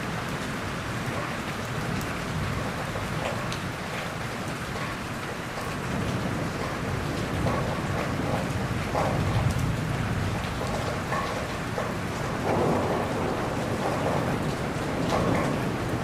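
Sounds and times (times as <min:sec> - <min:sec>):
heavy rain falling: 0:00.0 - 0:16.0
rain drop ticks: 0:00.0 - 0:16.0
distant thunder rumbling: 0:05.6 - 0:16.0.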